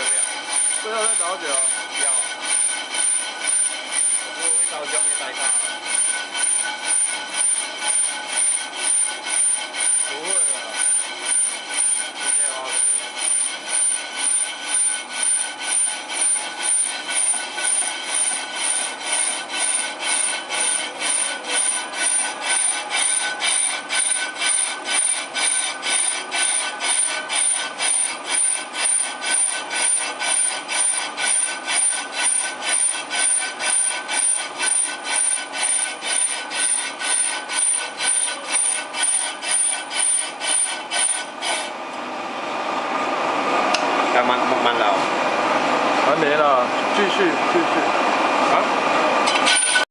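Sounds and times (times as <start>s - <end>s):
brake lathe cutting bit scraping: 0.0s - 41.9s, 49.2s - 49.9s.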